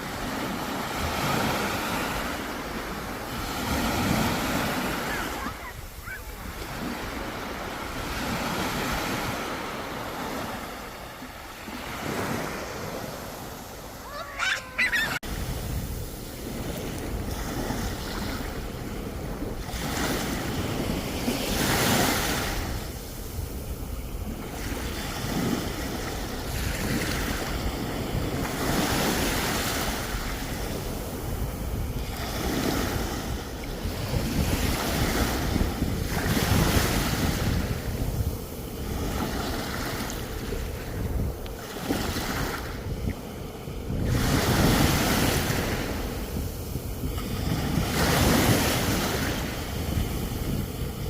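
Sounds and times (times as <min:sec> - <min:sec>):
sea waves breaking on shore: 0:00.0 - 0:51.0
wind rumbling on microphone: 0:11.7 - 0:51.0.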